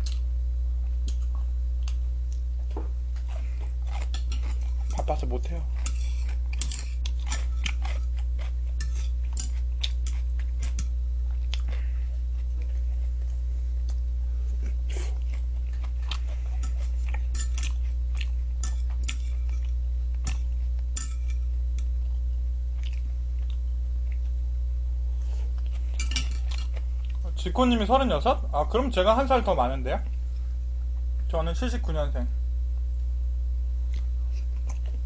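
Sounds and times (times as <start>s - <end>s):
steady low hum: 0.0s - 35.0s
chewing and crunching fried chicken: 0.9s - 21.0s, 21.8s - 24.4s, 25.2s - 27.5s, 33.9s - 35.0s.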